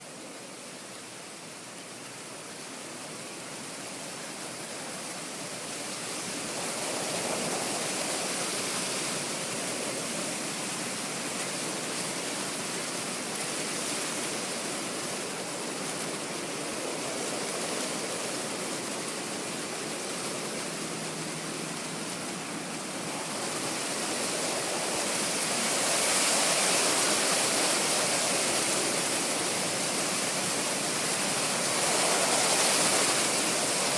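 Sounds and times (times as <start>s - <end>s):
wind rustling tree leaves: 0.0s - 33.9s.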